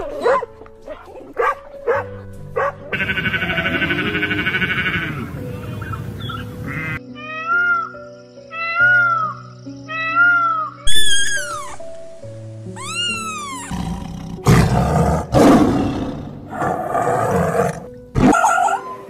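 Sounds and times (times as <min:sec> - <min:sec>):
soft background music: 0:00.0 - 0:19.0
peacock calls: 0:02.9 - 0:11.8, 0:12.8 - 0:14.0
tiger growling and roaring: 0:13.7 - 0:18.4.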